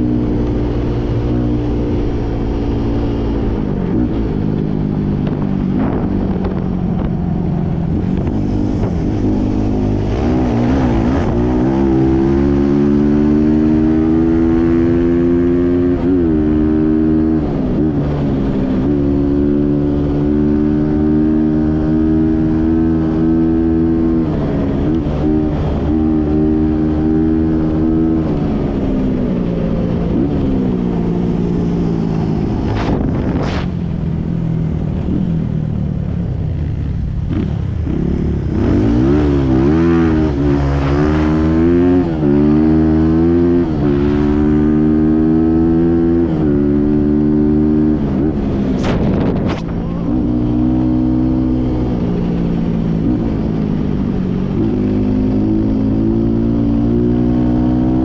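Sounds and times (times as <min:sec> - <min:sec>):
motorbike engine revving: 0:36.6 - 0:58.0.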